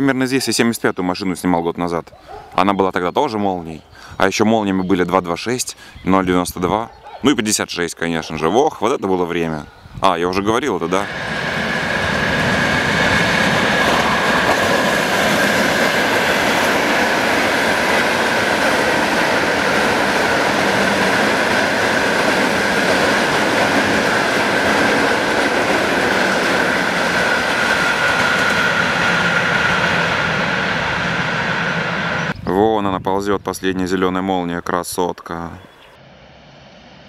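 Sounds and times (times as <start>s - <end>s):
train high whine: 10.6s - 32.4s, 36.0s - 37.0s
train wheels rumbling on rail: 10.6s - 32.4s.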